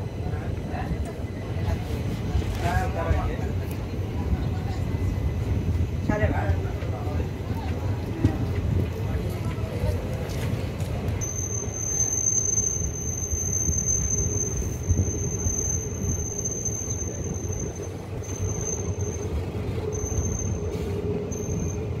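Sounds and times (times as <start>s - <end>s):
train wheels rumbling on rails: 0.0s - 22.0s
high-pitched wheel squeal: 11.2s - 22.0s.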